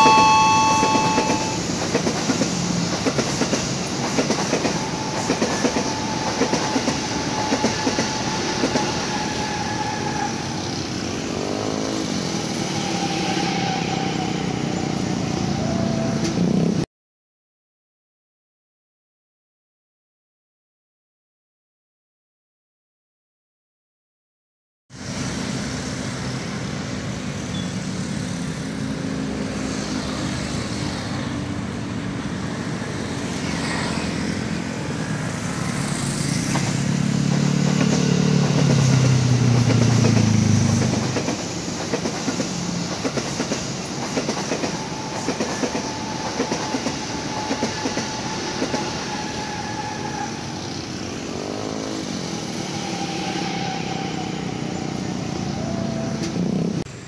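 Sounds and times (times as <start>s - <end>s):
electric train passing: 0.0s - 16.8s, 25.0s - 57.0s
train wheels clicking over rail joints: 1.6s - 9.2s, 36.4s - 49.8s.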